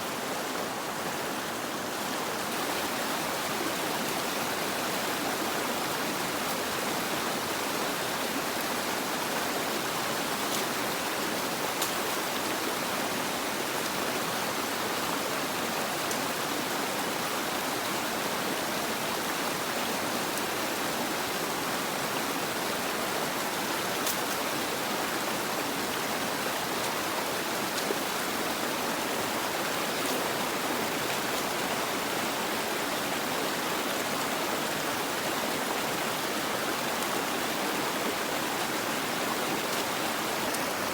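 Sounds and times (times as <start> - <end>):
water rushing: 0.0 - 40.9.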